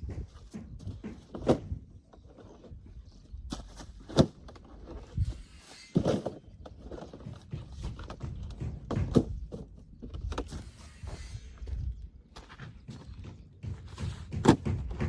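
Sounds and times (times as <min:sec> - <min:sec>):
knocks and thumps: 0:00.0 - 0:02.0, 0:06.0 - 0:10.7, 0:11.7 - 0:15.0
footsteps: 0:07.1 - 0:15.0.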